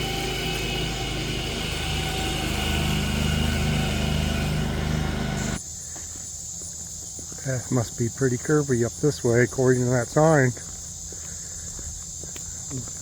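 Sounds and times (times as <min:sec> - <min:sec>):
lawn mower engine running: 0:00.0 - 0:05.6
cricket trill: 0:00.0 - 0:13.0.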